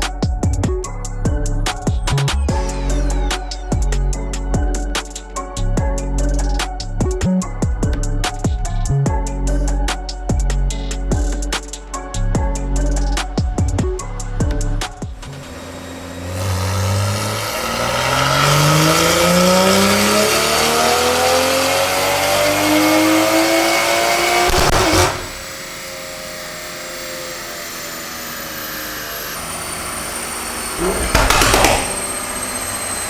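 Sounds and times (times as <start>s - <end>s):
car engine revving on dyno: 15.2s - 33.0s
short loud burst: 30.8s - 32.7s.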